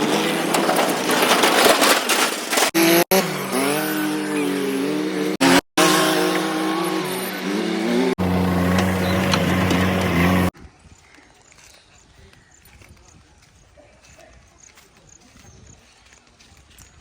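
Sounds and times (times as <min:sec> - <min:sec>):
vehicle engines revving: 0:02.5 - 0:10.5
steady engine note: 0:04.8 - 0:10.5.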